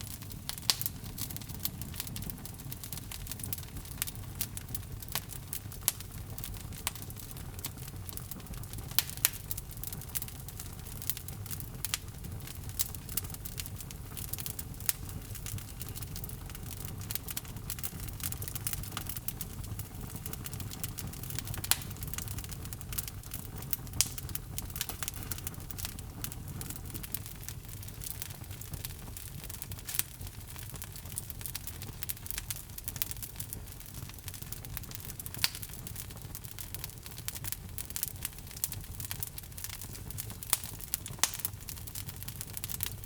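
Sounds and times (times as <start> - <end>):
burning logs crackling and popping: 0.0 - 43.0
fire flames rumbling: 0.0 - 43.0.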